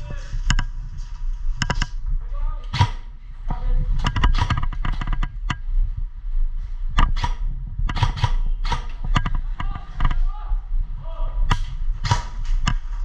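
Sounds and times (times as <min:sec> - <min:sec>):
wind rumble on microphone: 0:00.0 - 0:13.0
airsoft gun shots: 0:02.7 - 0:03.1, 0:07.0 - 0:09.0, 0:11.5 - 0:12.4.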